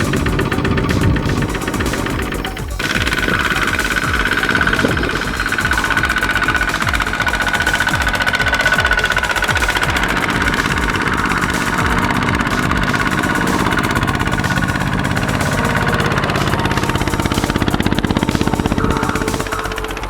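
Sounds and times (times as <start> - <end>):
diesel tractor engine chugging: 0.0 - 20.0.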